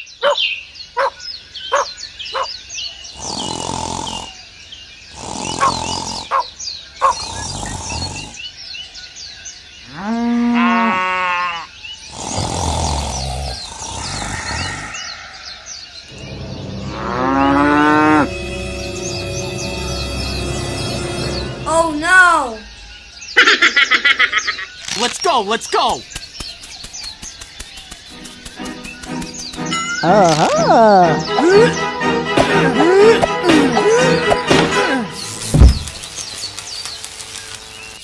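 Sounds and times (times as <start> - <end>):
small birds chirping: 0.0 - 38.0
cow mooing: 16.1 - 19.0.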